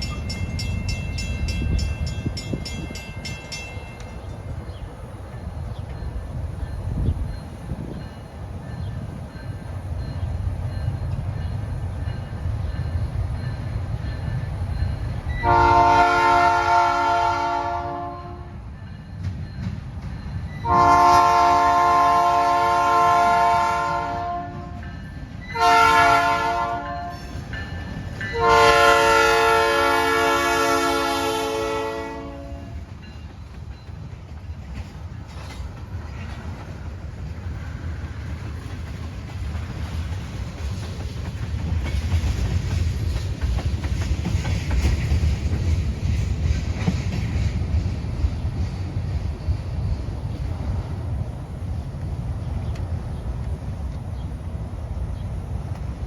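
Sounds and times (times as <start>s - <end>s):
train rumbling past: 0.0s - 56.0s
locomotive air horn blasts: 15.4s - 18.6s, 20.6s - 24.8s, 25.5s - 27.4s, 28.3s - 32.8s.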